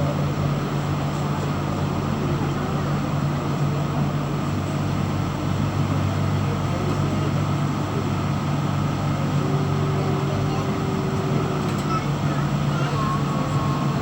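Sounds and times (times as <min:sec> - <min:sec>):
ship engines humming: 0:00.1 - 0:14.0
constant rushing noise: 0:06.6 - 0:14.0.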